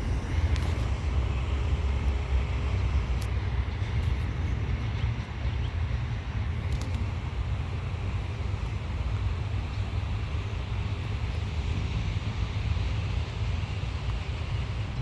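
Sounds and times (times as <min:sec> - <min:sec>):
outdoor noise: 0:00.0 - 0:15.0
wind buffeting microphone: 0:00.0 - 0:15.0.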